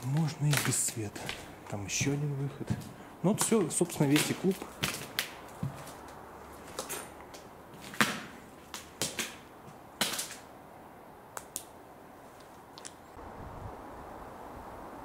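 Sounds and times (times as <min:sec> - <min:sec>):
footsteps: 0:00.0 - 0:10.4
clicks and cracks underfoot: 0:00.0 - 0:10.5, 0:12.4 - 0:13.0.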